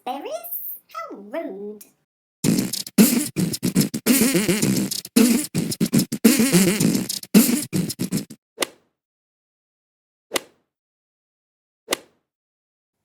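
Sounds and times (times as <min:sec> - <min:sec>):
buzzing lip sounds: 0:02.4 - 0:08.4
person beatboxing: 0:02.4 - 0:08.4.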